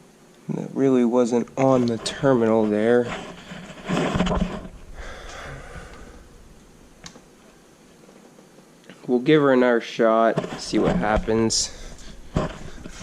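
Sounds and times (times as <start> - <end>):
faint handling noise: 1.3 - 9.2
man sighing: 5.0 - 6.4.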